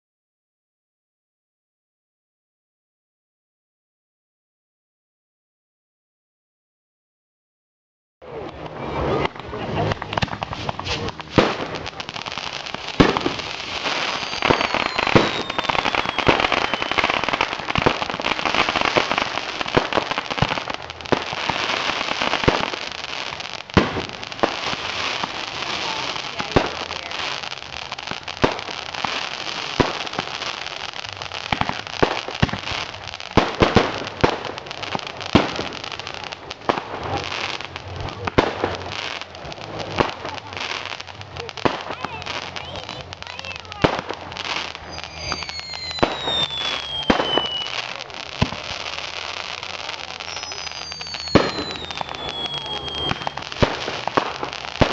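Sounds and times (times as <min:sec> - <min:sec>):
fireworks bangs: 0:08.2 - 0:54.9
fireworks crackling: 0:08.2 - 0:54.9
falling firework whistle: 0:08.4 - 0:34.0, 0:42.4 - 0:54.9.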